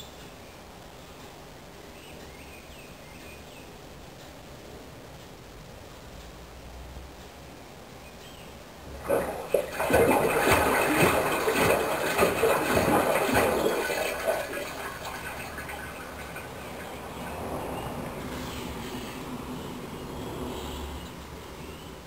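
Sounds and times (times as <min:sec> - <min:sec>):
washing machine water gushing: 0:08.8 - 0:18.4.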